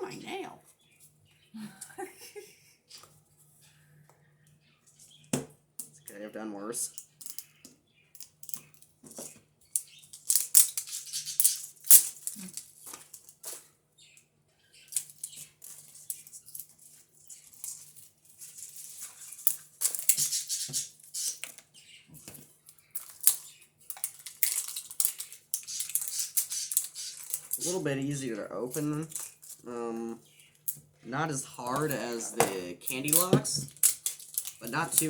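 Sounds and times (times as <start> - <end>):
plastic wrapping crinkling and tearing: 9.8 - 13.7, 22.6 - 29.7, 31.4 - 35.0.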